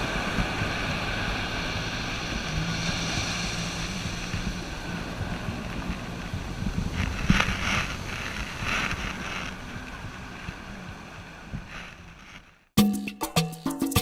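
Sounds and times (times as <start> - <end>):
surf hissing: 0.0 - 12.6
wind rumbling on microphone: 0.0 - 12.7
music with a latin beat: 12.8 - 14.0.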